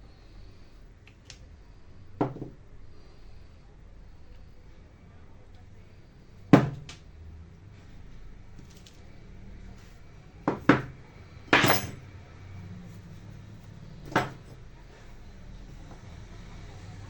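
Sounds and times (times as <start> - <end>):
hard objects clinking on workbench: 11.5 - 12.0, 14.0 - 14.6.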